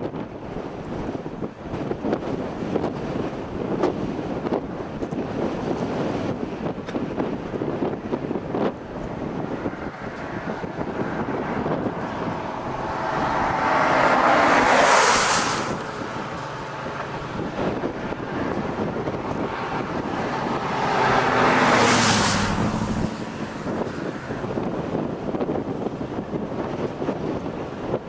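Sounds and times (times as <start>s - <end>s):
vehicles passing on road: 0.0s - 28.0s
wind buffeting the microphone: 0.0s - 28.0s.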